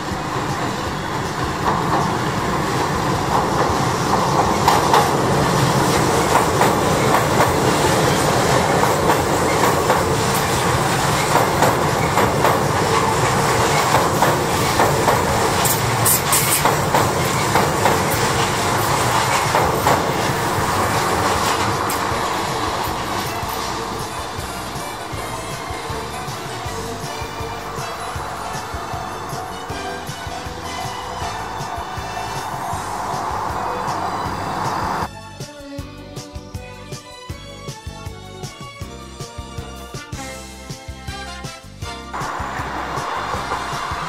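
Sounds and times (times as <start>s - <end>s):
train passing rumble: 0.0s - 35.1s, 42.1s - 44.0s
wheels clacking over rail joints: 0.0s - 35.1s, 42.2s - 44.0s.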